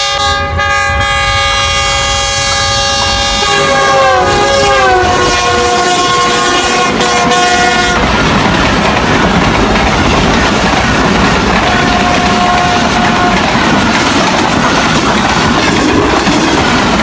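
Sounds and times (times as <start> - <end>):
train horn chord: 0.0 - 8.2, 11.6 - 13.7
train coaches rumbling and clattering: 0.0 - 17.0.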